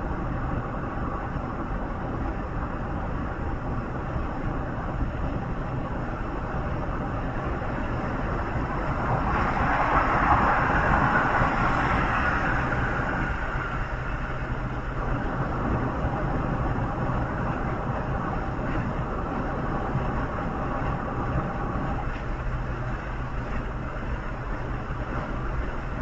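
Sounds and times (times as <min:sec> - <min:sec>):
vehicle road noise rumble: 0:00.0 - 0:26.0
rushing hiss of passing vehicle: 0:08.6 - 0:14.5.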